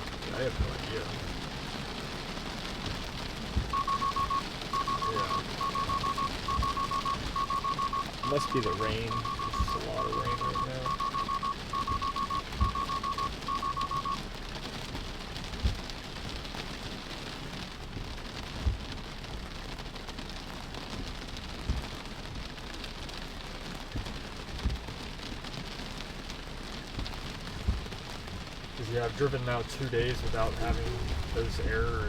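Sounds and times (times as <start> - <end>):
heavy rain on a car: 0.0 - 32.0
dull low thumps: 2.8 - 13.9, 15.4 - 16.5, 17.9 - 19.0, 21.6 - 22.5, 23.9 - 25.0, 26.8 - 28.8, 30.1 - 32.0
rapid alert beeps: 3.7 - 14.2.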